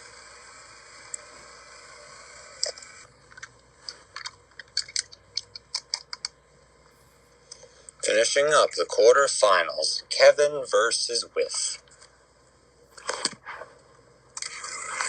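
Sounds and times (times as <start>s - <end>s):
sharp clicks and taps: 4.2s - 6.4s.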